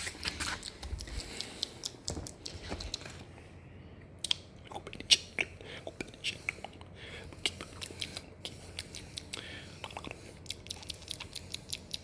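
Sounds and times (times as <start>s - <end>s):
wet mouth clicks and smacks: 0.6s - 2.6s, 4.2s - 6.6s, 7.4s - 12.0s.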